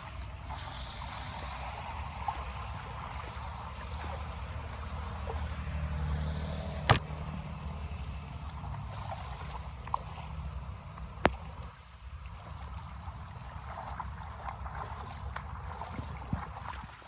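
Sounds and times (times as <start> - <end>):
water running and trickling: 0.0 - 17.0.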